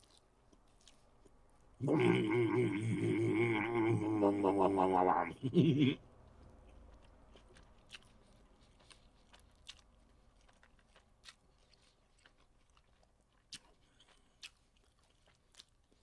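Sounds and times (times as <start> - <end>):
person chewing food: 0.0 - 16.0
mouth clicks: 1.8 - 6.0.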